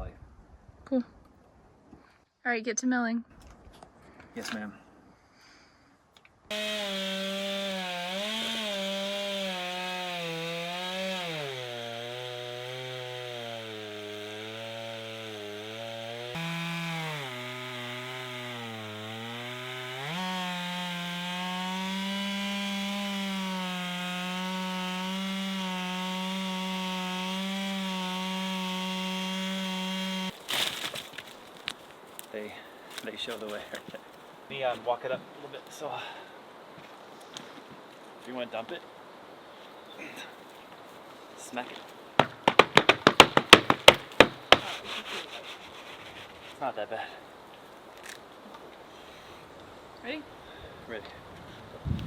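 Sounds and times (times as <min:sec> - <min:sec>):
chainsaw ripping a log: 0:06.5 - 0:31.8.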